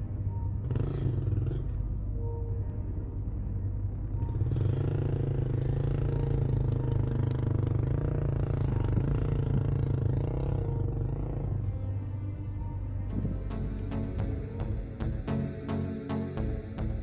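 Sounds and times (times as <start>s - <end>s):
motorcycle engine running: 4.2s - 11.6s, 13.1s - 17.0s.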